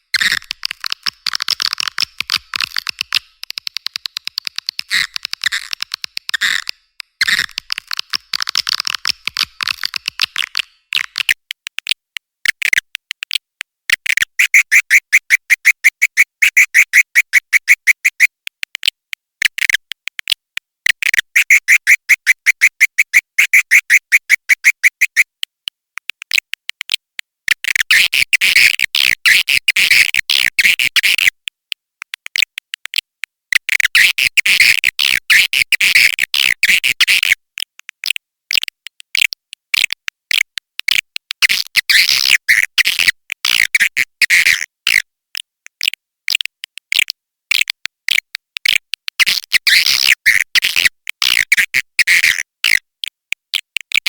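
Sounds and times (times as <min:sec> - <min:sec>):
swiftlet chirping clicks: 0:00.2 - 0:52.8.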